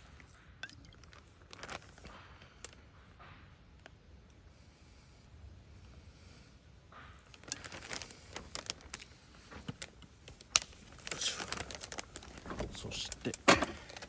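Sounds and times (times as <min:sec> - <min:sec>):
food packaging crinkling: 0:00.0 - 0:02.8, 0:07.3 - 0:14.0.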